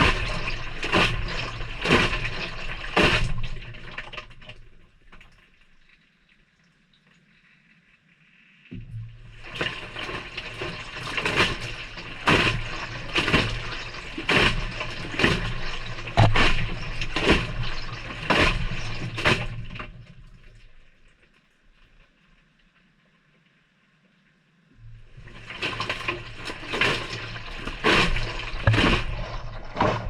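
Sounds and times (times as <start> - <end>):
washer motor humming: 0.0 - 3.7, 9.3 - 19.8, 24.8 - 30.0
water and laundry sloshing: 0.0 - 6.4, 8.7 - 22.3, 24.8 - 30.0.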